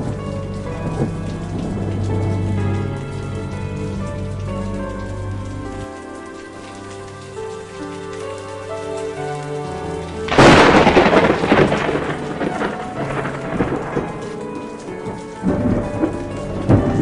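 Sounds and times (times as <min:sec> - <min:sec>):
thunder crack and rumble: 0:00.0 - 0:06.9, 0:09.8 - 0:17.0
soft background music: 0:00.0 - 0:17.0
steady rain: 0:00.0 - 0:17.0.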